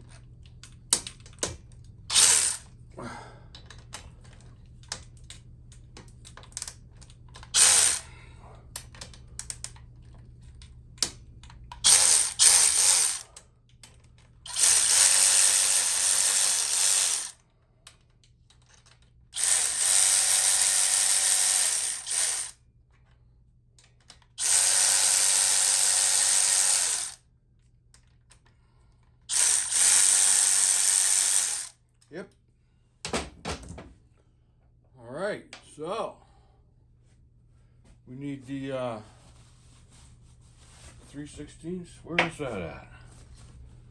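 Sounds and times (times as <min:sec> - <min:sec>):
cordless power tool spinning bolts: 0:02.1 - 0:02.7, 0:07.5 - 0:08.1, 0:11.8 - 0:13.4, 0:14.5 - 0:17.4, 0:19.4 - 0:22.6, 0:24.4 - 0:27.2, 0:29.3 - 0:31.8.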